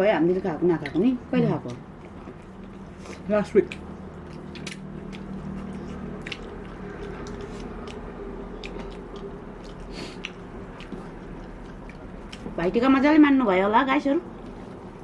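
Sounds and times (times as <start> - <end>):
people chewing and eating: 0.0 - 15.0
wet smacking clicks: 0.8 - 12.6.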